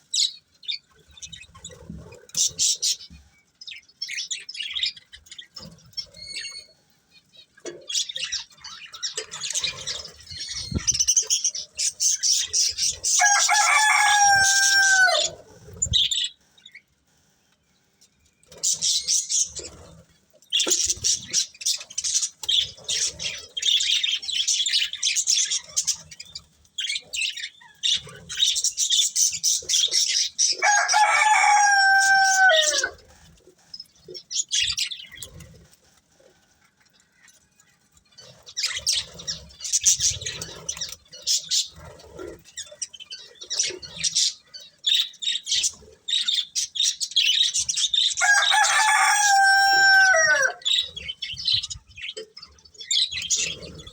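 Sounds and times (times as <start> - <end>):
rooster crowing: 13.1 - 15.4, 30.6 - 33.0, 48.2 - 50.7.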